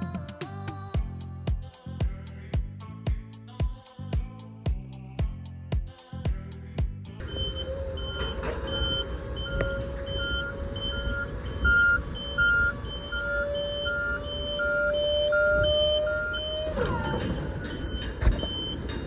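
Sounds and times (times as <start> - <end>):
diesel engine whine: 6.6 - 19.0
truck warning beeper two pitches: 7.2 - 19.0.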